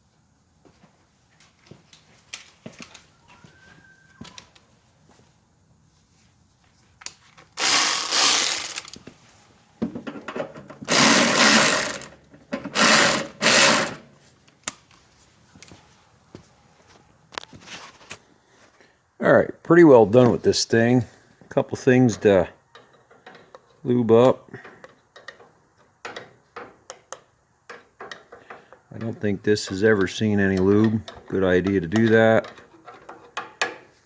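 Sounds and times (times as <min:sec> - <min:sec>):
power drill running: 0:07.6 - 0:09.0, 0:10.9 - 0:12.1, 0:12.7 - 0:14.0
tool clicks and knocks: 0:24.6 - 0:29.2, 0:29.8 - 0:33.9.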